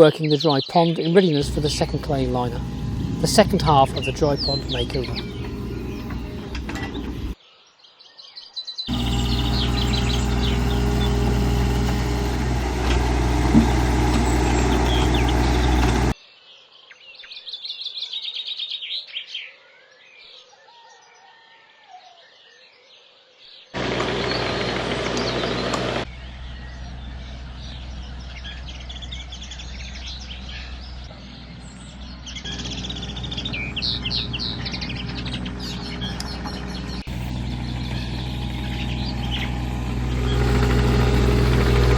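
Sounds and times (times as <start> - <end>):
birds singing and chirping: 0.0 - 21.2, 23.5 - 41.9
machine engine running: 1.4 - 7.4, 8.9 - 16.2, 23.8 - 41.9.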